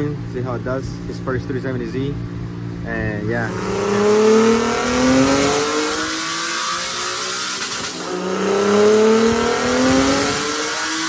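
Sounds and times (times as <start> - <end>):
car engine revving on dyno: 3.2 - 11.0.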